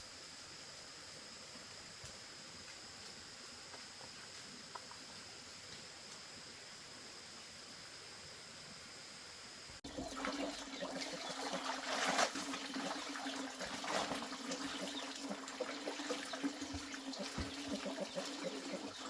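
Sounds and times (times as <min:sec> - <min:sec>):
water trickling and splashing: 0:09.8 - 0:19.0.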